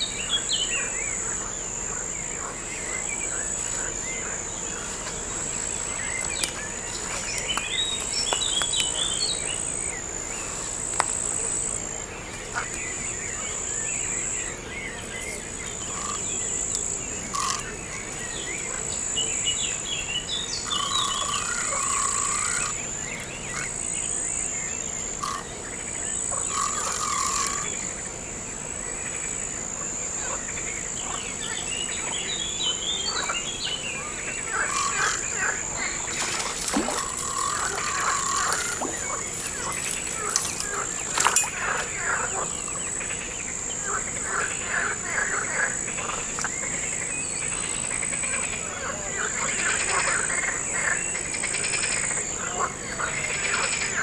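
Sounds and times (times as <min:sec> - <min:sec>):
insect trill: 0:00.0 - 0:54.0
birds chirping: 0:30.8 - 0:49.3.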